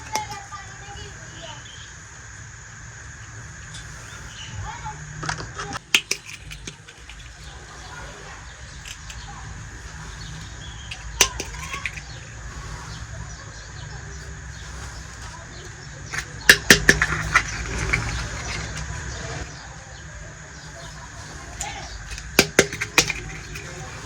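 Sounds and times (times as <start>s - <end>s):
small objects clicking on tabletop: 0.0s - 0.5s, 5.2s - 13.0s, 14.6s - 19.5s, 21.5s - 24.0s.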